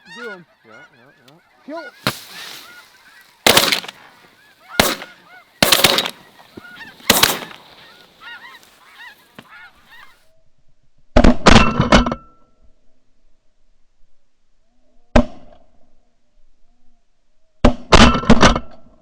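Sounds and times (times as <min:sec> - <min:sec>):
geese honking: 0:00.0 - 0:10.1
shotgun blasts: 0:02.0 - 0:08.8.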